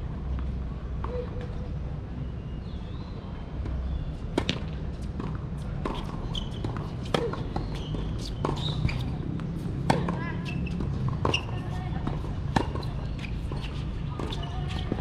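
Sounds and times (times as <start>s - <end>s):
tennis ball bouncing on hard court: 3.6s - 15.0s
tennis ball struck by rackets: 4.3s - 15.0s.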